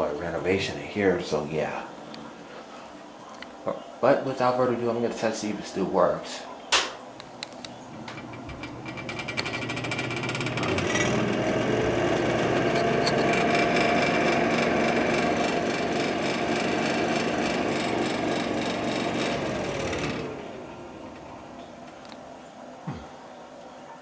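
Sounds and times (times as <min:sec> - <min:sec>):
exhaust fan motor rattling: 0:07.9 - 0:22.1.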